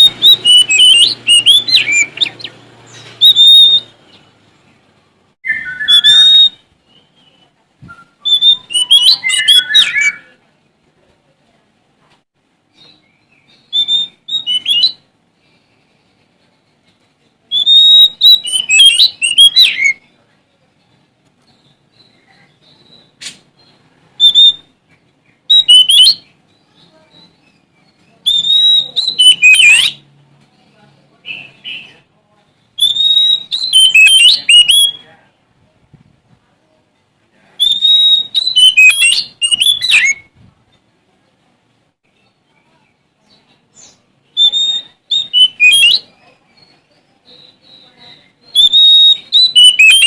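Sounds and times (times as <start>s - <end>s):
songbird singing whistles: 0.0s - 4.0s, 5.4s - 10.4s, 12.8s - 15.1s, 17.5s - 20.1s, 21.4s - 24.7s, 25.4s - 30.0s, 32.7s - 35.1s, 37.6s - 40.3s, 43.3s - 50.0s.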